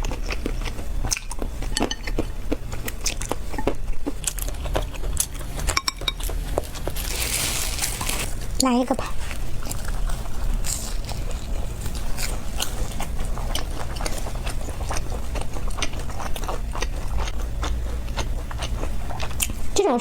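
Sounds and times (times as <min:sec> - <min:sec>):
biting and chewing fried pastry: 0:00.0 - 0:19.8.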